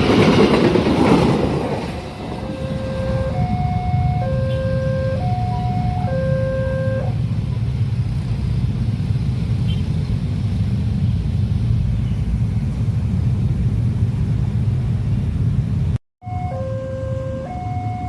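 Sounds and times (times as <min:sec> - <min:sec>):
train rumbling past: 0:00.0 - 0:16.5
two-tone crossing warning signal: 0:02.3 - 0:07.2, 0:16.2 - 0:18.0.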